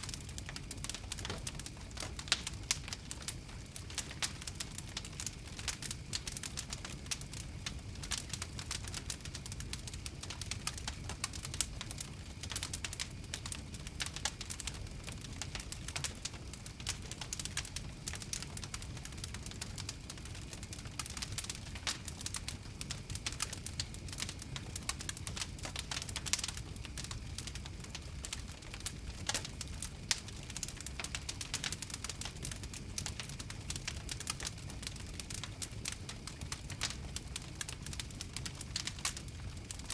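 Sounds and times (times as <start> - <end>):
open fire crackling: 0.0 - 39.9.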